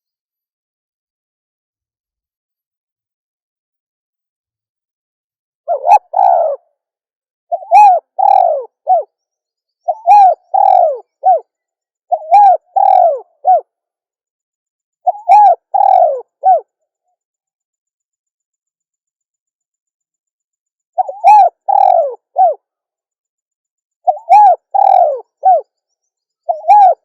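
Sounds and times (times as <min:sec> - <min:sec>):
dove cooing: 0:05.7 - 0:06.6, 0:07.5 - 0:09.1, 0:09.9 - 0:11.4, 0:12.1 - 0:13.7, 0:15.1 - 0:16.7, 0:21.0 - 0:22.6, 0:24.1 - 0:25.6, 0:26.5 - 0:27.0.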